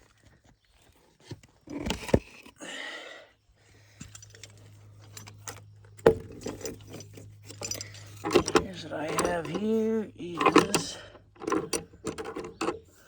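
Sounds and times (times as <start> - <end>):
metal hardware clinking: 4.0 - 13.0.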